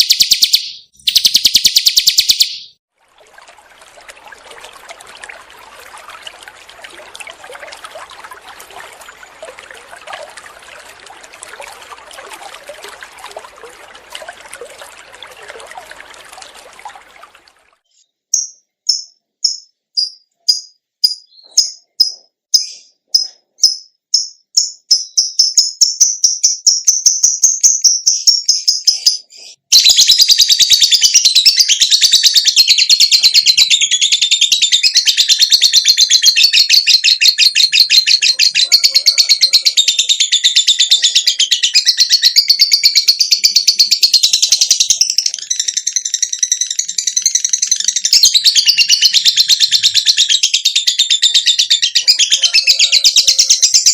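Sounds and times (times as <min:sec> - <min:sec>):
songbird warbling: 0:03.6 - 0:17.5, 0:51.7 - 0:53.9.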